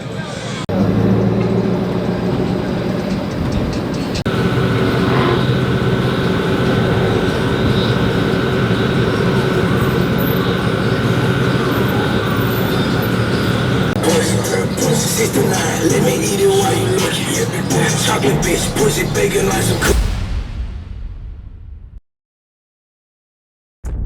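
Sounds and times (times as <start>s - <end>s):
truck engine rumbling: 0.0s - 20.0s
steady high tone: 4.3s - 20.0s.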